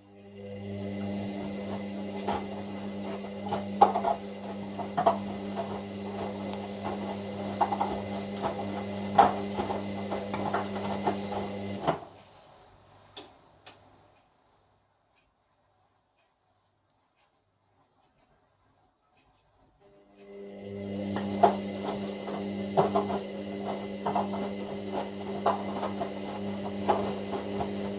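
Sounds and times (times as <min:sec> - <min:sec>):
washer dryer motor humming: 0:00.0 - 0:12.2, 0:19.9 - 0:27.9.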